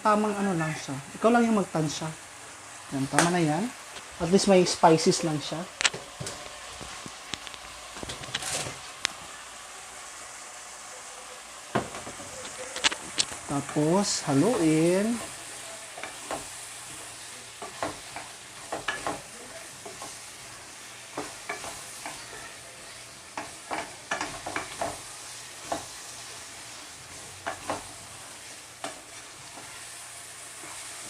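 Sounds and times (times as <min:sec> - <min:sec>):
food sizzling in a frying pan: 0:00.0 - 0:31.0
utensil scraping a pan: 0:05.8 - 0:09.0.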